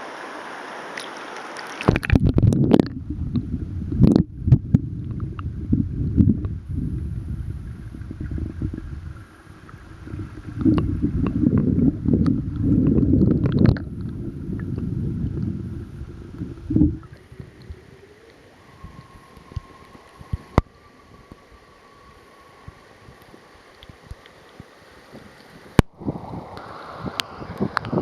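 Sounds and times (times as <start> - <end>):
river rushing over riffle: 0.0 - 2.4, 15.7 - 28.0
wind buffeting microphone: 1.9 - 21.7, 25.0 - 28.0.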